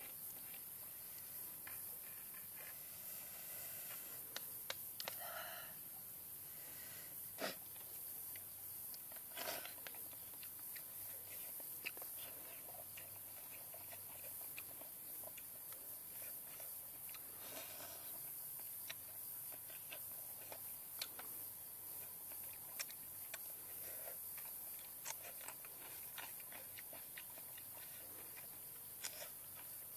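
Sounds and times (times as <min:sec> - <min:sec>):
faint high hiss: 0:00.0 - 0:26.2
person chewing and biting: 0:07.4 - 0:17.8, 0:22.0 - 0:29.9.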